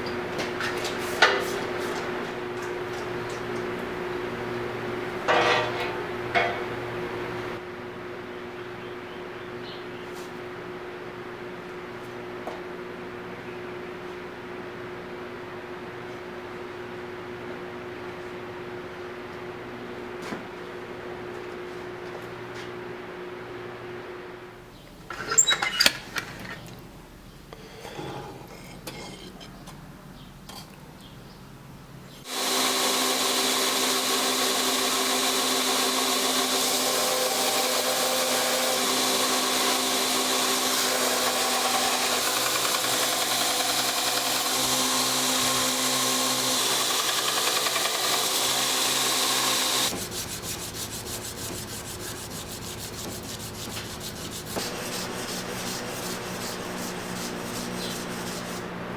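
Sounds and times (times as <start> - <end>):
power tool running: 32.2 - 58.9
rubbing sanding sound: 48.7 - 58.9.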